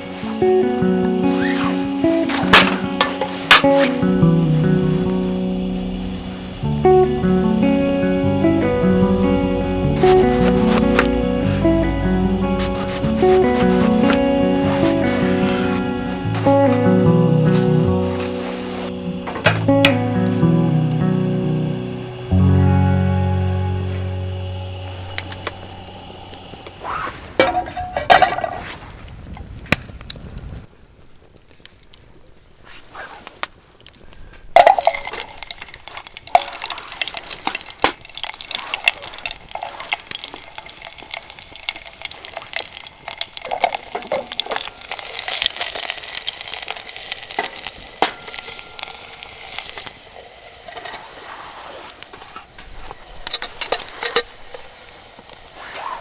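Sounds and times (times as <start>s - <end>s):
utensil clinking and scraping metal: 0.0s - 4.2s, 10.0s - 20.0s, 25.1s - 28.7s, 34.6s - 50.0s
food sizzling in a pan: 0.0s - 29.3s, 34.6s - 56.0s.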